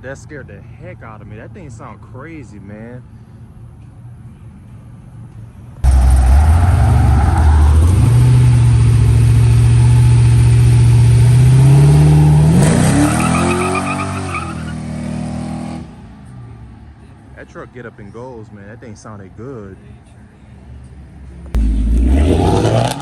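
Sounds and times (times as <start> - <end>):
truck engine accelerating: 5.8 - 16.0, 21.5 - 23.0.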